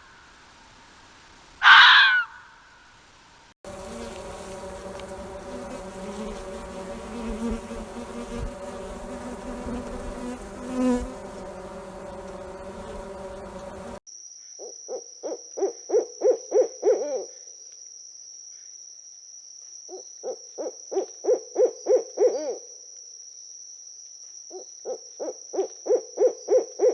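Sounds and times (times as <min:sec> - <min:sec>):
buzzing hum: 0:03.7 - 0:14.0.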